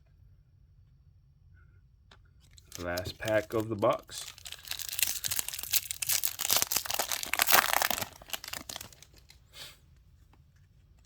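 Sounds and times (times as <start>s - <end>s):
wrapper tearing and crinkling: 2.5s - 9.4s.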